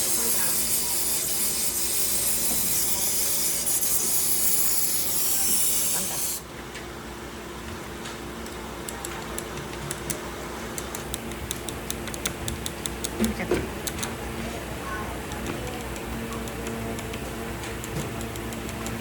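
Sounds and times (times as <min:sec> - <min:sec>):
loud steady hiss: 0:00.0 - 0:06.4.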